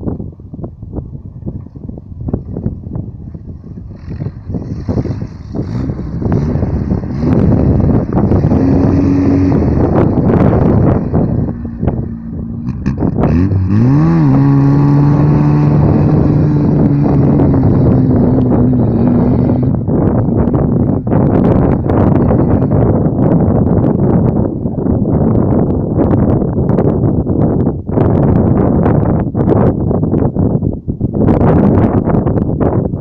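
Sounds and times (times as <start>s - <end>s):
vehicle engine revving: 2.4s - 24.4s.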